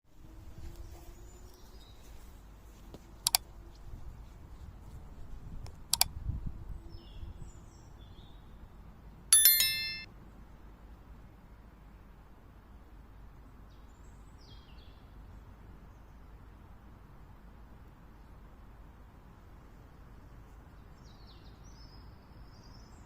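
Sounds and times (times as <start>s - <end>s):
metallic clinks: 9.4s - 10.1s
metallic ringing strikes: 9.4s - 10.1s.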